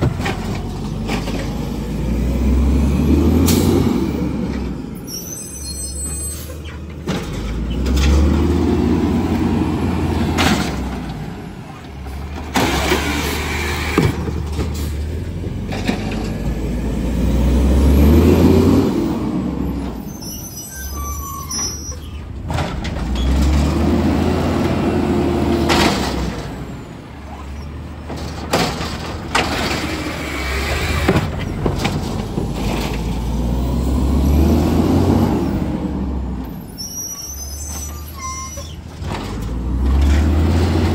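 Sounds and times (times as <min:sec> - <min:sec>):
garbage truck engine revving: 0:00.0 - 0:05.0, 0:06.3 - 0:20.0, 0:21.2 - 0:36.5, 0:37.6 - 0:40.9.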